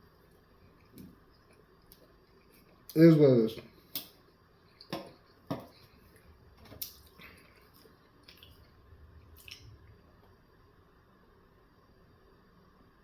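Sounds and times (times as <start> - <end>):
wet chewing mouth sounds: 4.7 - 9.8.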